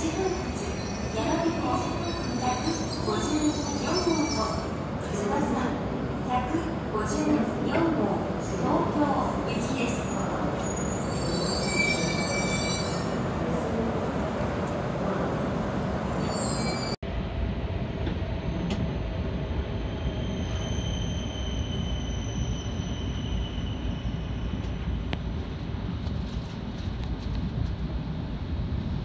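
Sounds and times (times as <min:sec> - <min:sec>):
train brakes squealing: 0:00.0 - 0:04.8, 0:09.9 - 0:13.2, 0:16.2 - 0:17.0, 0:19.8 - 0:25.1
train rolling: 0:16.1 - 0:29.0
train running rumble from inside: 0:23.5 - 0:29.0.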